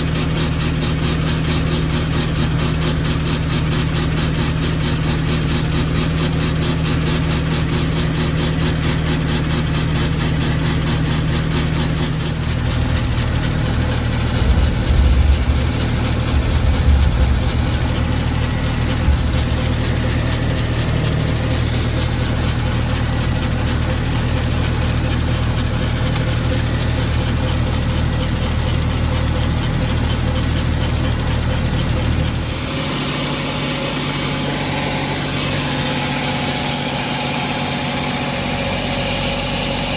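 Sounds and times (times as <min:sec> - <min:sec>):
car engine idling: 0:00.0 - 0:39.9
low thumps: 0:12.2 - 0:23.1.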